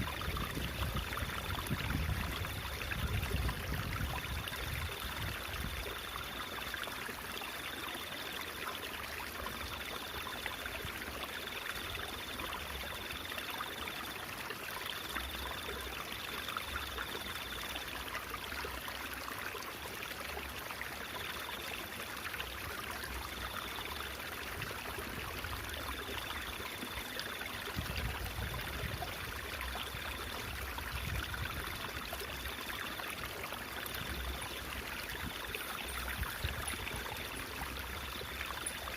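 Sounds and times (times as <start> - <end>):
water running and trickling: 0.0 - 38.9.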